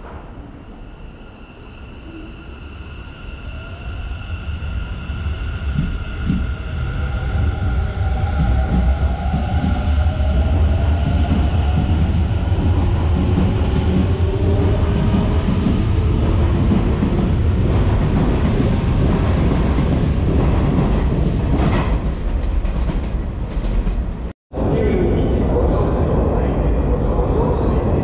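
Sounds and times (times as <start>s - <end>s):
train wheels rumbling on rails: 5.6s - 28.0s.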